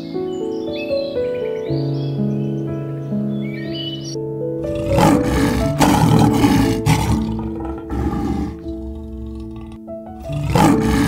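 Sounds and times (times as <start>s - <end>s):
soft piano music: 0.0s - 11.0s
lion roaring: 4.6s - 11.0s.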